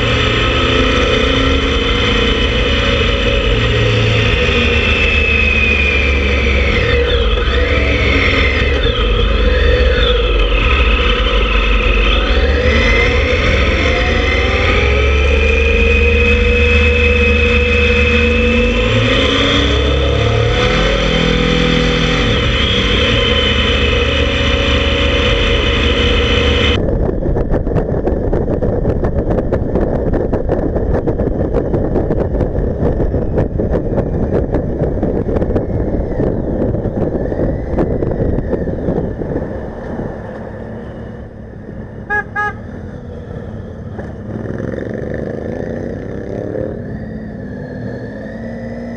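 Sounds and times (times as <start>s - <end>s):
motorcycle engines revving: 0.0s - 27.5s, 28.3s - 48.9s
wind buffeting microphone: 0.0s - 48.8s
horn toots: 42.0s - 42.8s.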